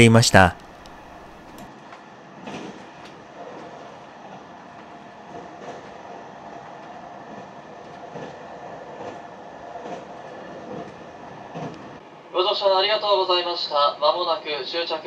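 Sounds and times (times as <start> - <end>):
train running rumble: 1.8 - 12.1.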